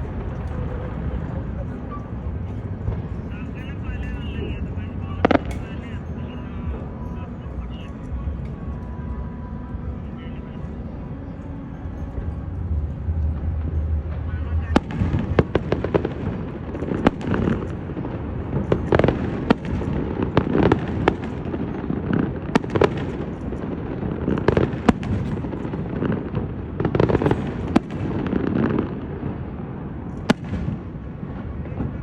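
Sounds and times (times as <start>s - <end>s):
fireworks bangs: 0.0s - 6.0s, 13.3s - 32.0s
rumble of fireworks reports: 0.0s - 32.0s.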